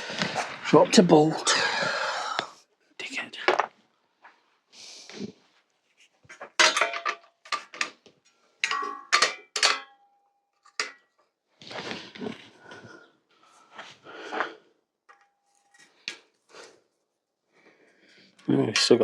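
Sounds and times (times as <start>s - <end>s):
metal tools clinking: 6.6s - 7.9s, 8.6s - 10.0s.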